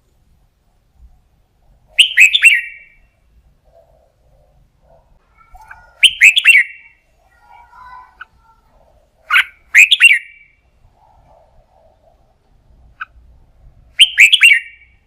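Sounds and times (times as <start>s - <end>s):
bird chattering: 1.9s - 3.0s, 3.7s - 13.2s, 14.0s - 15.0s
bird whistling song: 1.9s - 3.1s, 5.6s - 7.0s, 9.2s - 10.6s, 14.0s - 15.0s.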